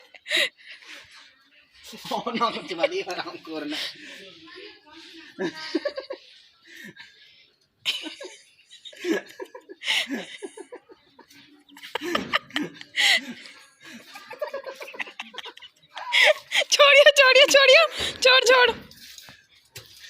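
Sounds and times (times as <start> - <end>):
people laughing: 1.8 - 4.3, 5.1 - 7.2, 7.8 - 17.9
people speaking: 10.4 - 18.8.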